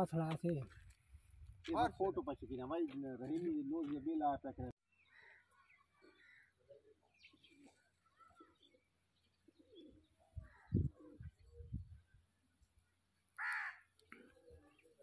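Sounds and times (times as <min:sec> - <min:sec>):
bird chirps and cooing: 0:05.0 - 0:12.2.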